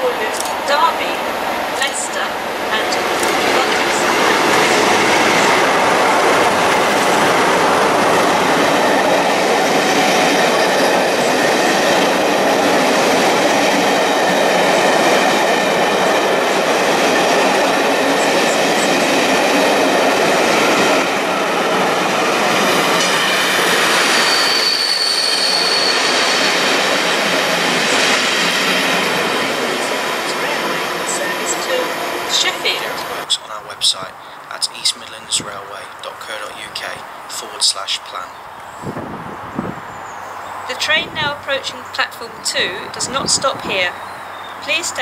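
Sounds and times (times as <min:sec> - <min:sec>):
wheel-on-rail noise: 0:00.0 - 0:33.3
high wheel squeal: 0:23.0 - 0:27.1.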